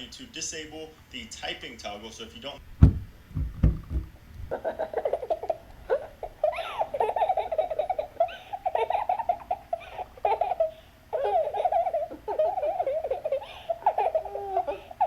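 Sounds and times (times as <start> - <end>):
baby laughing and squealing: 4.5 - 15.0.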